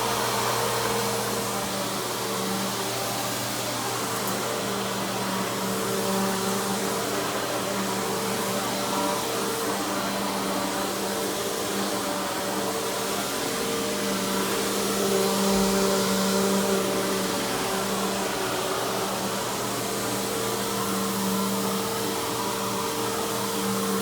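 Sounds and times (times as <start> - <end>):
upright vacuum cleaner running: 0.0 - 24.0.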